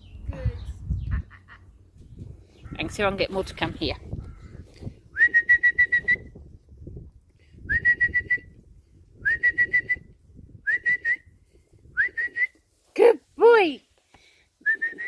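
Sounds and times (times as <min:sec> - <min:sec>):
person whistling trilled calls: 0:05.1 - 0:06.4, 0:07.6 - 0:08.6, 0:09.2 - 0:12.6, 0:14.6 - 0:15.0.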